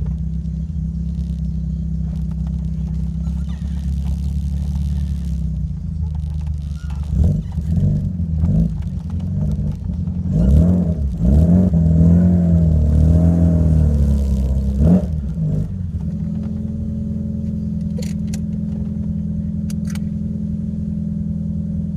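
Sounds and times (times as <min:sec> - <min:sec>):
car engine revving and idling: 0:00.0 - 0:21.9.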